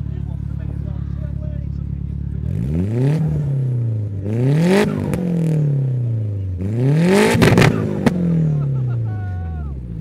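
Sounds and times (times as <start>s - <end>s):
car engine revving: 0.0s - 10.0s
sharp exhaust pops: 7.2s - 8.4s.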